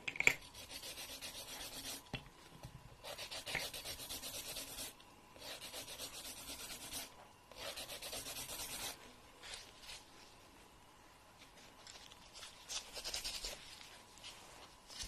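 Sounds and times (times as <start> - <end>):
nail file rasping: 0.4 - 2.0, 3.0 - 9.0, 12.8 - 13.6.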